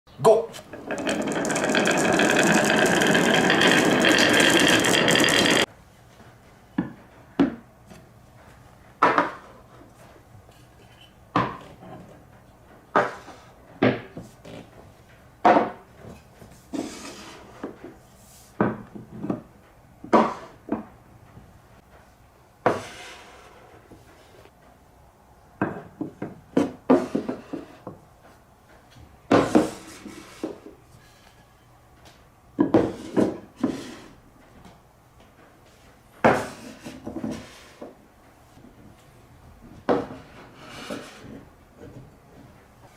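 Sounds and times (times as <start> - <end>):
marbles clattering on wooden track: 0.7 - 5.7
marble clicks on wooden track: 0.8 - 5.7.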